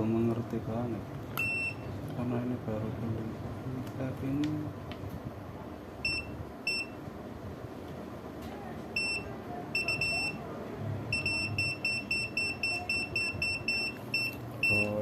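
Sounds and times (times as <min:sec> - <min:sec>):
multimeter buzzer beeping: 0:01.4 - 0:01.9, 0:06.0 - 0:07.0, 0:09.0 - 0:10.4, 0:11.1 - 0:15.0.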